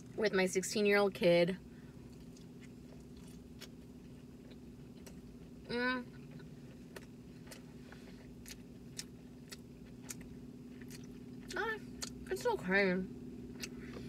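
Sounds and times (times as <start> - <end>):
steady low hum: 0.0 - 14.0
chewing crispy food: 1.9 - 12.5.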